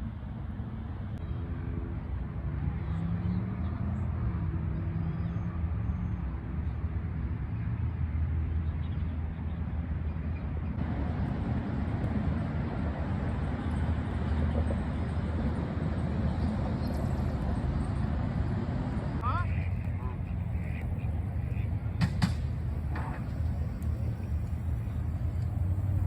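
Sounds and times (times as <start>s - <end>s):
low rumble of road traffic: 0.0s - 26.0s
vehicle engine passing: 10.8s - 26.0s.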